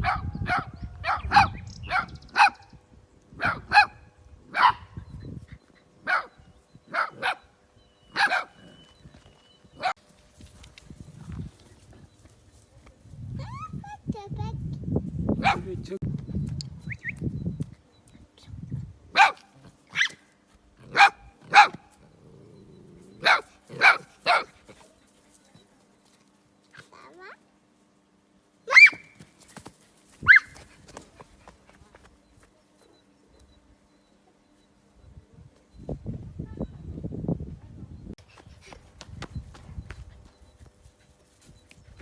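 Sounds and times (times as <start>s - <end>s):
small dogs barking: 0.0s - 5.0s, 6.0s - 8.8s, 15.4s - 15.7s, 19.1s - 22.0s, 23.1s - 24.9s, 30.2s - 30.6s
small dogs yapping: 19.2s - 20.3s, 28.7s - 29.2s, 30.2s - 30.7s.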